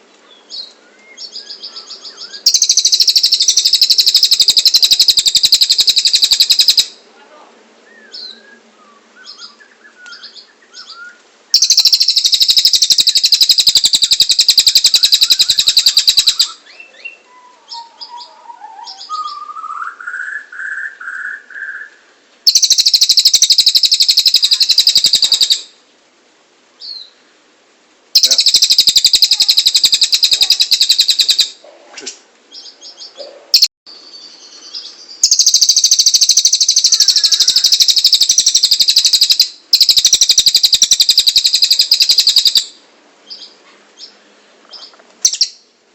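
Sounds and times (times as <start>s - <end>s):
bird chirps: 0.3s - 7.0s, 7.9s - 25.7s, 28.2s - 31.6s, 32.5s - 45.8s
bird rapid high trilling: 1.8s - 7.0s, 11.6s - 16.6s, 22.5s - 25.7s, 28.2s - 31.6s, 35.2s - 42.7s.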